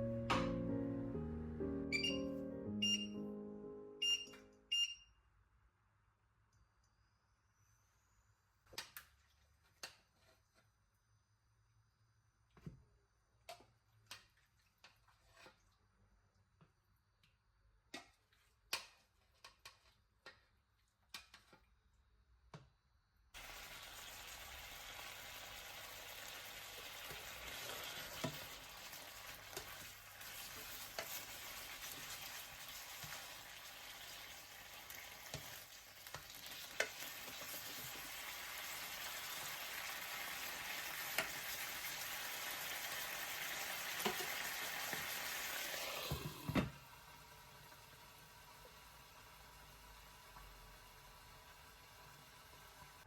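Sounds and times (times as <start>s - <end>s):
chicken sizzling in a pan: 23.4s - 53.0s.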